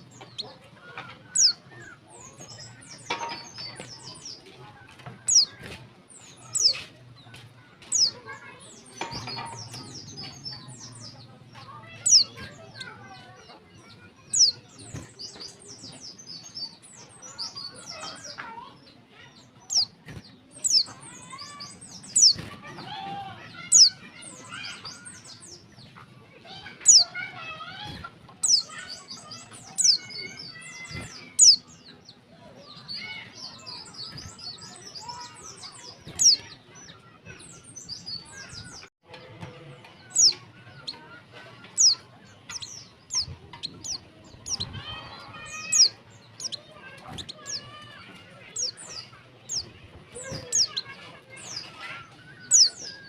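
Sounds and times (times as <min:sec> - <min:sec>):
birds twittering: 0:00.0 - 0:53.0.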